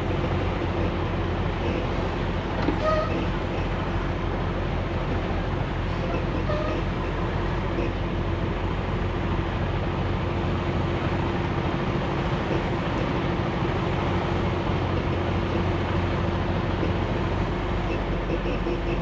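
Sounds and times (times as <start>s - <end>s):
road noise: 0.0s - 19.0s
truck engine drone: 0.0s - 19.0s.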